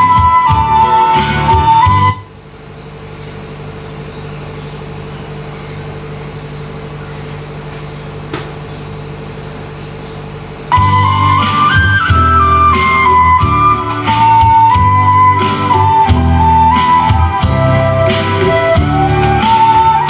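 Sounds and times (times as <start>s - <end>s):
flute music: 0.0s - 2.3s, 10.7s - 20.0s
low hum with faint hiss: 0.0s - 20.0s.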